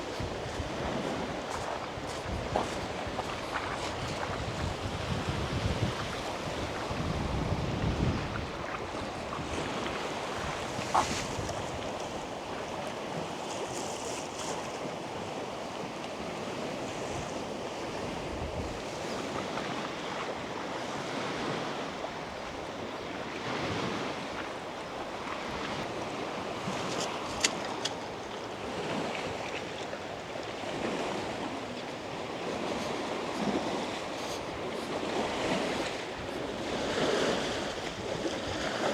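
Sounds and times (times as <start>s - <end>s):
wind buffeting microphone: 0.0s - 12.8s, 16.6s - 20.2s
lake waves lapping on shore: 0.0s - 38.9s.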